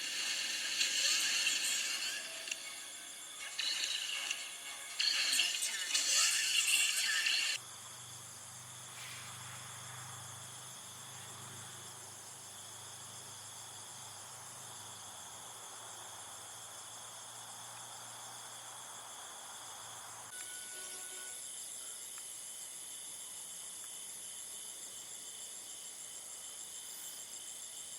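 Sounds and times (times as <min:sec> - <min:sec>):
crickets chirring: 0:00.0 - 0:27.9.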